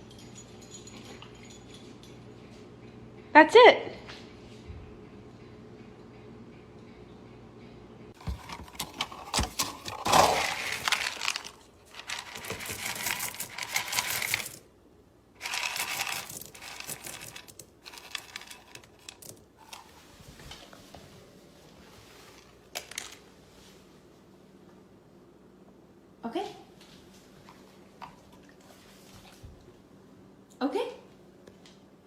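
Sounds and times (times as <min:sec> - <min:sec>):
dog crunching dry food: 0:08.8 - 0:14.6, 0:15.4 - 0:19.4.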